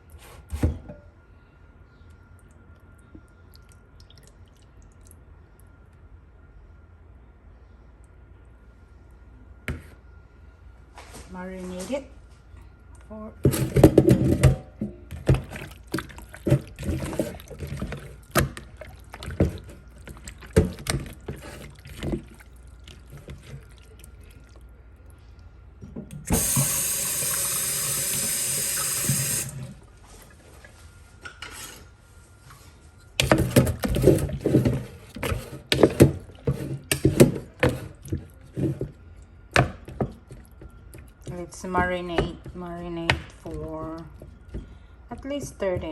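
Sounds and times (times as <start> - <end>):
water running from kitchen tap: 26.3 - 29.8.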